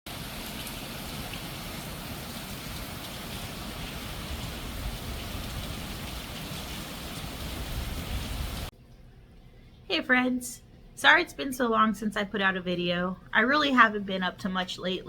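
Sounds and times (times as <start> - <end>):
steady rain hiss: 0.1 - 8.7.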